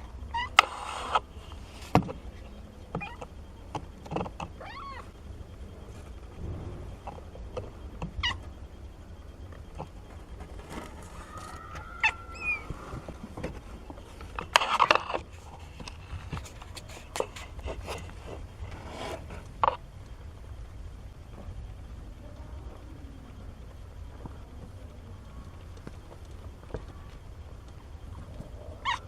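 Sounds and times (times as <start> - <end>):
kittens mewing: 8.1 - 8.5, 11.0 - 13.3, 28.5 - 29.0.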